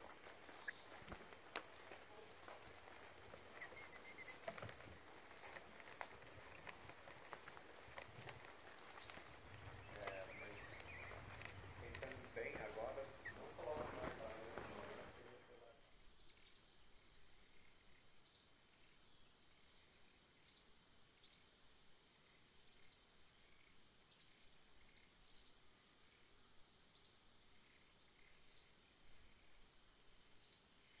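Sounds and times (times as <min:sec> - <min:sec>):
bird chirping: 0:00.0 - 0:01.2, 0:03.2 - 0:05.9, 0:08.0 - 0:16.7.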